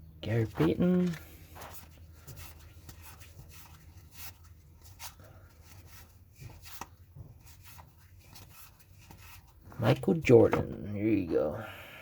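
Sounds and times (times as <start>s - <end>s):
paper cards sliding and scraping: 0.4s - 9.6s.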